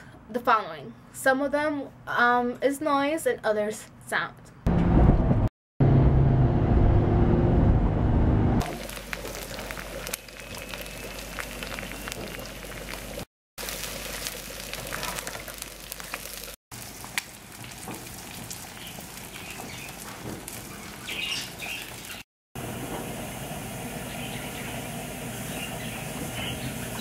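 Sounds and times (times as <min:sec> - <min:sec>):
eggs sizzling in a pan: 0:08.6 - 0:22.3
pot boiling: 0:08.6 - 0:27.0.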